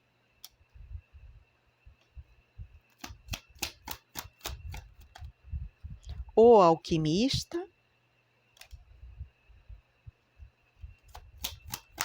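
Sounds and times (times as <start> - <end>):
sharp clicks of cards: 2.9 - 5.3, 11.1 - 12.0.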